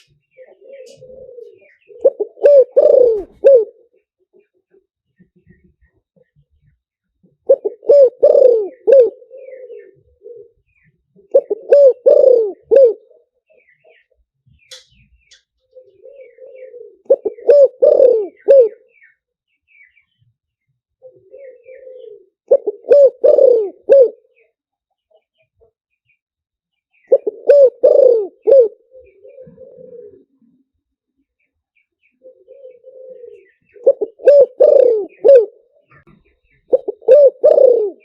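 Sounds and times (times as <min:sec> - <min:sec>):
dove cooing: 0:00.0 - 0:04.8, 0:07.3 - 0:14.1, 0:15.6 - 0:19.1, 0:21.0 - 0:24.6, 0:27.1 - 0:30.7, 0:32.1 - 0:38.0.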